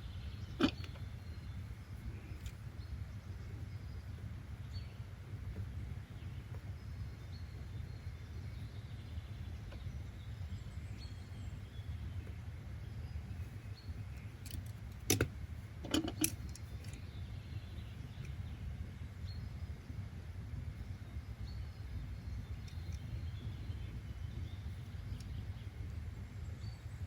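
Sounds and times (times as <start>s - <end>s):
low ambient rumble: 0.0s - 27.0s
faint bird chirps: 16.1s - 27.0s.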